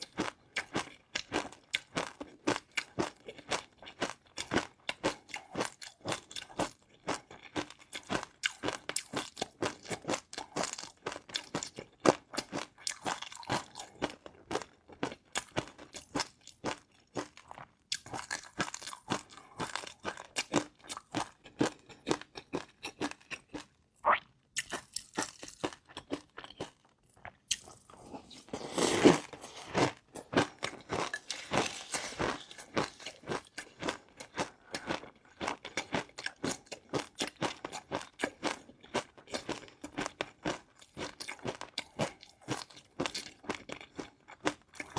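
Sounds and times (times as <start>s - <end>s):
crunching and chewing food: 0.0s - 44.9s.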